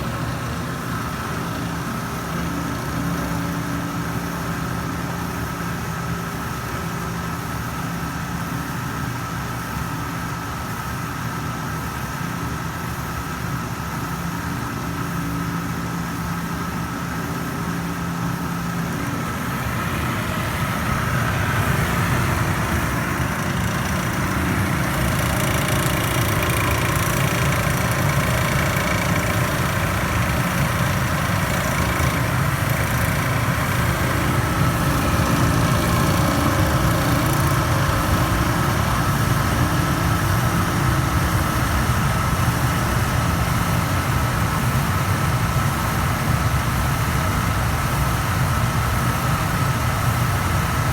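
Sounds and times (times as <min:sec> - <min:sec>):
clothes dryer grinding and chattering: 0:17.1 - 0:50.9.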